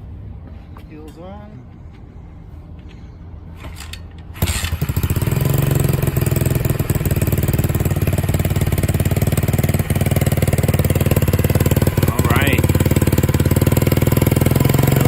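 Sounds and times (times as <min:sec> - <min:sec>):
motorbike engine starting and idling: 0:03.5 - 0:15.0.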